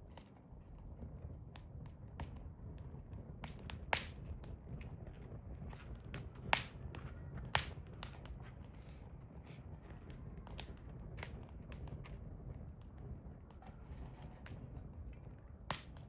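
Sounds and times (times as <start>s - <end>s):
fire crackling: 0.0s - 16.0s
sharp fire pops: 0.9s - 8.8s, 15.6s - 16.0s.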